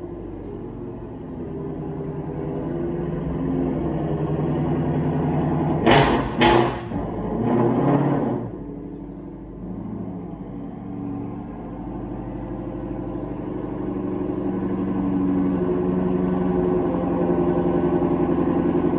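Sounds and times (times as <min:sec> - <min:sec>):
car engine idling: 0:00.0 - 0:07.5, 0:08.3 - 0:18.9
engine revving: 0:00.0 - 0:08.9, 0:09.6 - 0:18.9.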